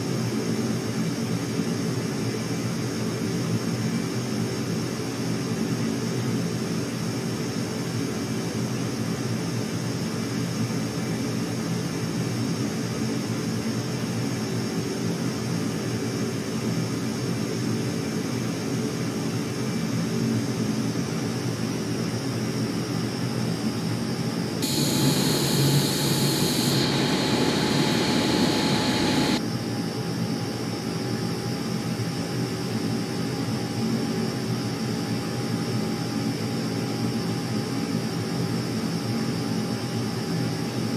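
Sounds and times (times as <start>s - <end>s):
jet engines whining: 24.6s - 29.4s
rough rush of engine noise: 24.6s - 29.4s.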